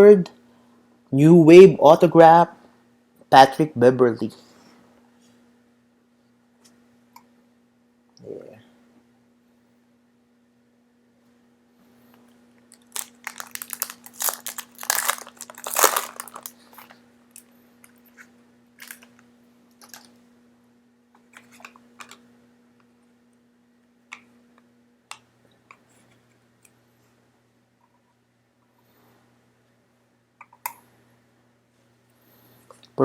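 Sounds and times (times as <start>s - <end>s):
foil wrapper crinkling: 12.7s - 17.5s, 18.8s - 19.1s.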